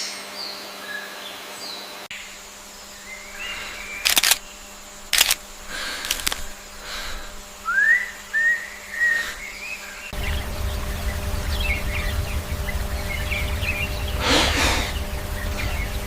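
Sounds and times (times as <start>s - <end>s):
sharp noisy bursts: 2.1s - 16.0s
rising whistles: 7.2s - 16.0s.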